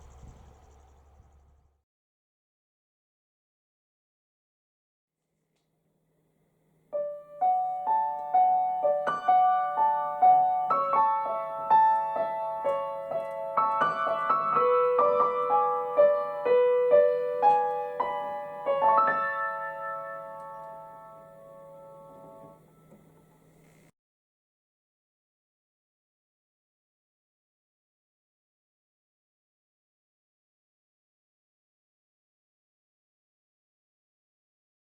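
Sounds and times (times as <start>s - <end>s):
gentle piano melody: 6.9s - 23.1s.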